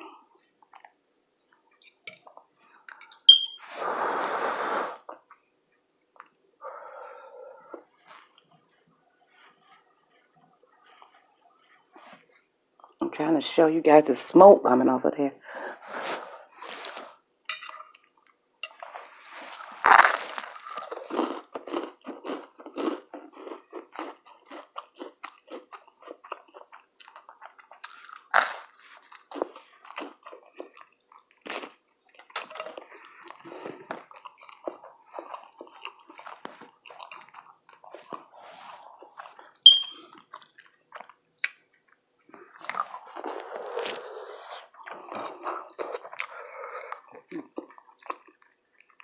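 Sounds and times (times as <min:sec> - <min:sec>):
person chewing crunchy food: 0:16.0 - 0:49.0.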